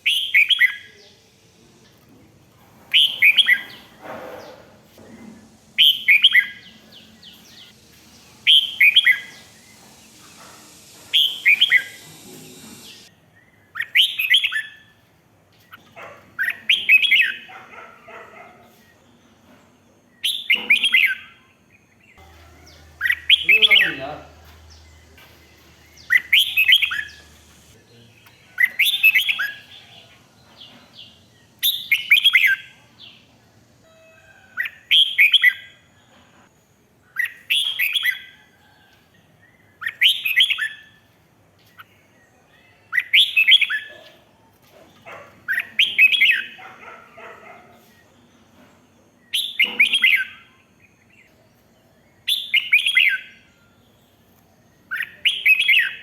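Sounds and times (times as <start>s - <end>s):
bird whistled song: 0.0s - 0.9s, 2.9s - 4.6s, 5.8s - 14.9s, 20.2s - 21.4s, 22.2s - 29.7s, 31.6s - 32.8s, 37.2s - 38.4s, 39.8s - 40.9s, 42.9s - 43.9s, 49.3s - 51.0s, 52.2s - 53.5s, 54.9s - 56.0s.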